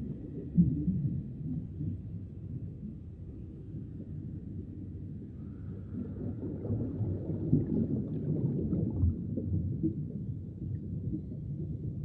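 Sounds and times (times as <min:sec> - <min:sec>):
low underwater rumble: 0:00.0 - 0:12.0.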